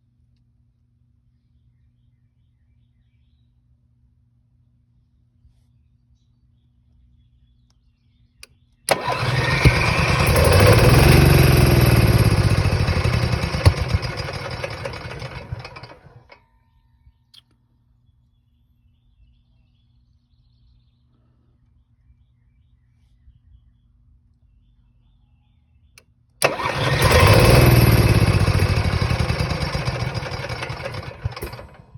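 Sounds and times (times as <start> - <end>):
click: 8.4 - 11.2
generator engine cranking: 8.9 - 16.4, 26.4 - 31.9.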